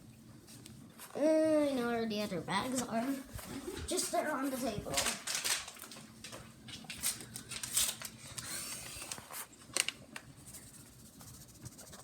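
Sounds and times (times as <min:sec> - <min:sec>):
packet crinkling: 0:03.9 - 0:10.3.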